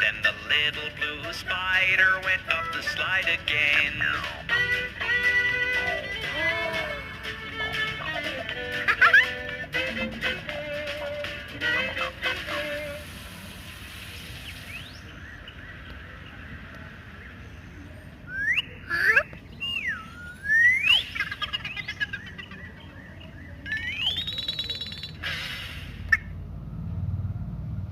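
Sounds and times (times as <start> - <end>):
faint steady hiss: 12.6 - 15.1
whistled chirps: 14.0 - 15.6, 18.2 - 25.5
rising whistle: 19.6 - 21.2.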